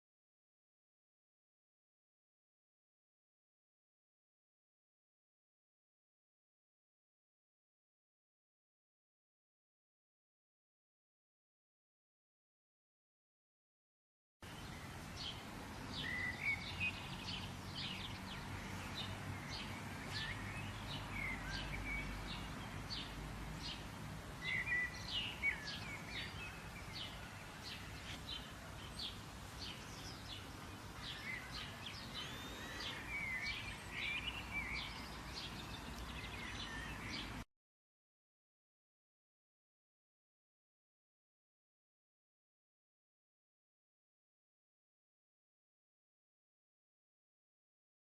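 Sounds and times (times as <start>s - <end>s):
small birds chirping: 14.4s - 37.5s.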